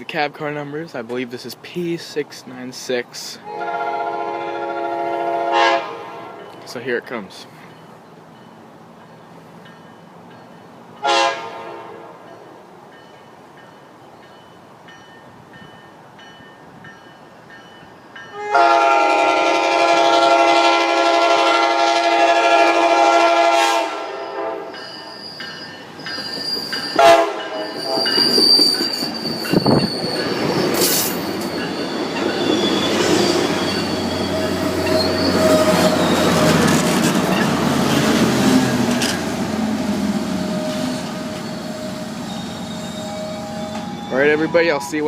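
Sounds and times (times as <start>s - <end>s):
train horn blast: 3.4s - 6.6s, 11.0s - 12.3s, 18.3s - 24.8s, 27.0s - 28.2s
train rumble: 15.4s - 45.0s
train wheels and brakes squealing: 24.2s - 38.1s, 39.9s - 45.0s.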